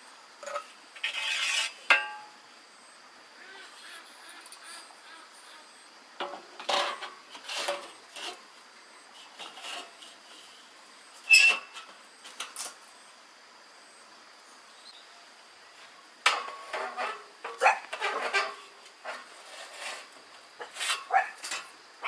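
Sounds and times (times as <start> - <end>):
knocks clinks and scrapes: 6.3 - 8.5, 16.3 - 21.8.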